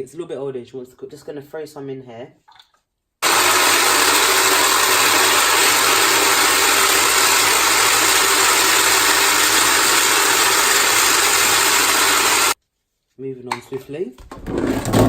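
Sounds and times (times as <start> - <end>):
small blender chopping vegetables: 3.2 - 12.6.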